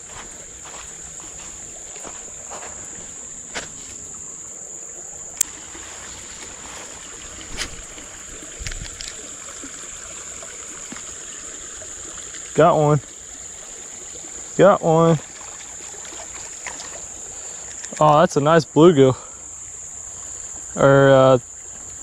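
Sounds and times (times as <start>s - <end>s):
high-pitched insect buzz: 0.0s - 12.5s
running water: 0.0s - 22.0s.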